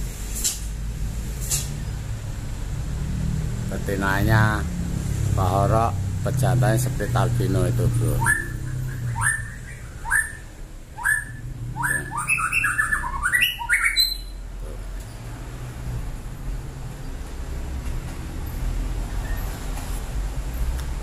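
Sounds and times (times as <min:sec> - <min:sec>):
caged songbird calling: 0:06.8 - 0:15.3, 0:19.0 - 0:19.7.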